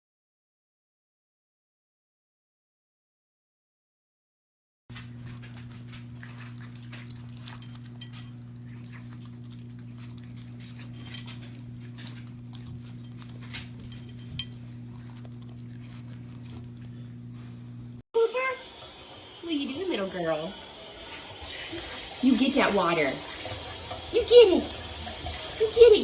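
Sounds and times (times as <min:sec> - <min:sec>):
steady low hum: 0:04.9 - 0:21.0.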